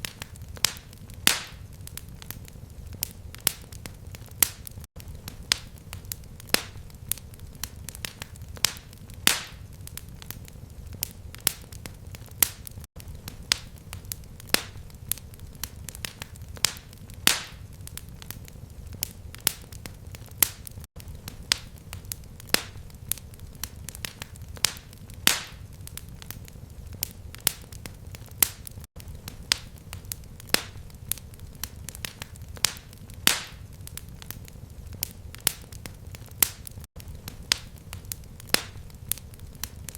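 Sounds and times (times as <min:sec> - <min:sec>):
fireplace fire crackling: 0:00.0 - 0:39.9
low rumble of flames: 0:00.0 - 0:39.9.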